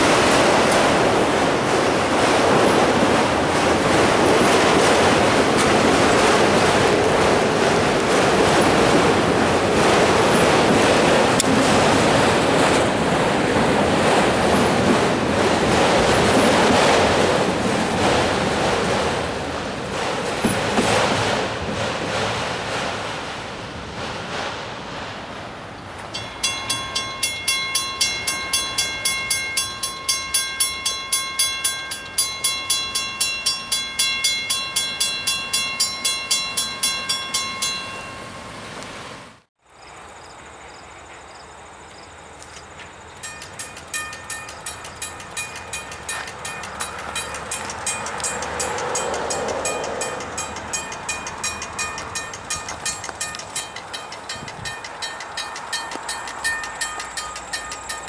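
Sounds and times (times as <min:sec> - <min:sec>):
freight train rolling on rails: 0:00.0 - 0:58.0
grade crossing bell ringing: 0:26.1 - 0:38.6, 0:43.2 - 0:58.0.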